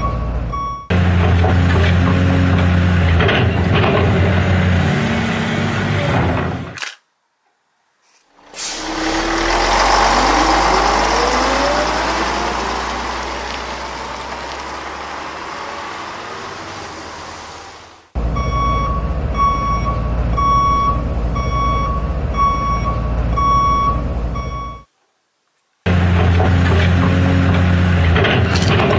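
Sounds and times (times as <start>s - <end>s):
truck reversing alarm beeping: 0.0s - 1.0s, 18.2s - 24.9s
truck engine rush with hiss: 8.2s - 18.2s
low engine rumble: 8.3s - 24.9s
rising whine: 8.4s - 18.1s.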